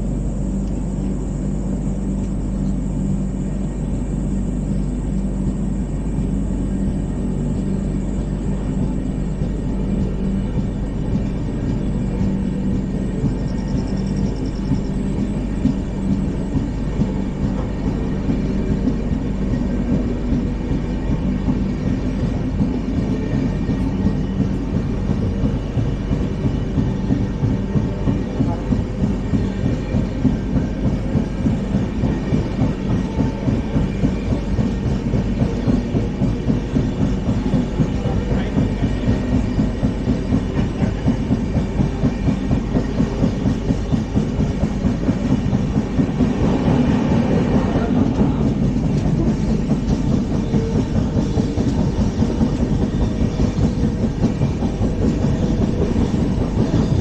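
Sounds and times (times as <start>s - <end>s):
train coach rumbling: 0.0s - 57.0s
wheels clattering on rails: 0.4s - 57.0s.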